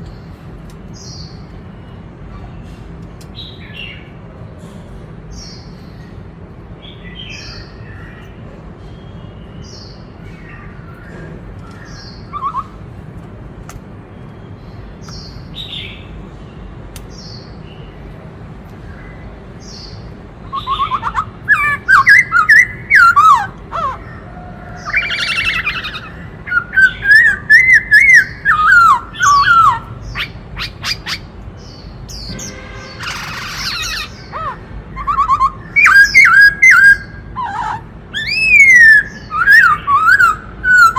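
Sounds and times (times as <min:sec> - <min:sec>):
bird chirping: 0:06.8 - 0:13.0, 0:14.0 - 0:18.1, 0:18.7 - 0:40.9
bird whistling varied phrases: 0:12.3 - 0:12.8.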